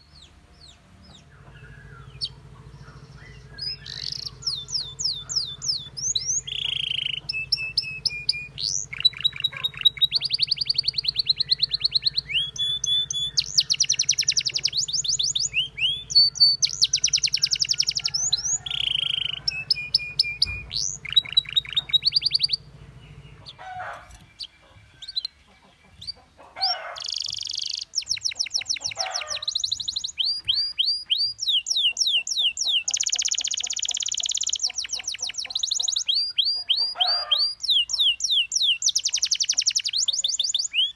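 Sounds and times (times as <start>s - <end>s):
canary singing trills: 0.0s - 40.9s
steady low hum: 0.1s - 25.1s.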